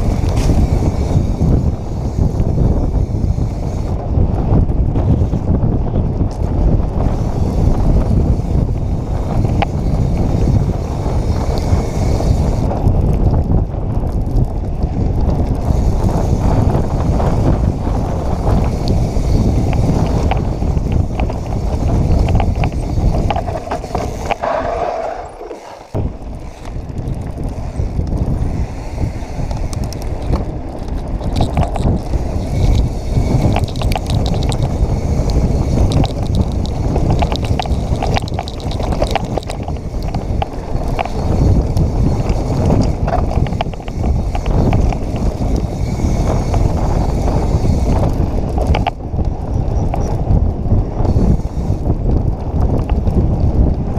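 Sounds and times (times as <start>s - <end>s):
bike rattling over rocks: 0.0s - 53.9s
wind rushing over microphone: 0.0s - 53.9s
tyres crunching on dirt: 18.1s - 48.8s.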